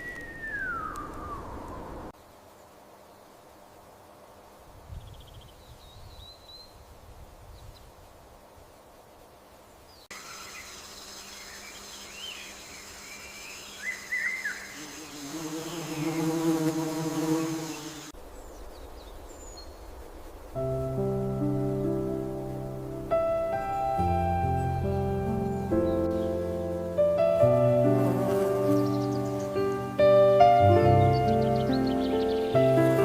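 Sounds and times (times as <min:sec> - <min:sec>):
birds chirping: 0:00.0 - 0:02.1, 0:09.8 - 0:16.6, 0:17.2 - 0:33.0
insects buzzing: 0:08.4 - 0:33.0
insect buzzing close by: 0:10.1 - 0:19.5, 0:20.3 - 0:33.0.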